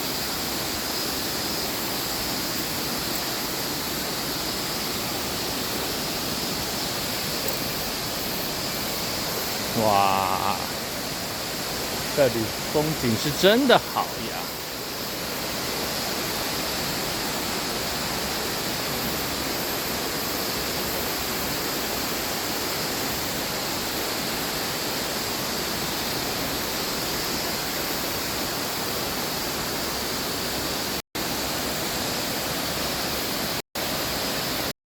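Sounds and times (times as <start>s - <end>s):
waterfall roaring: 2.2s - 24.2s.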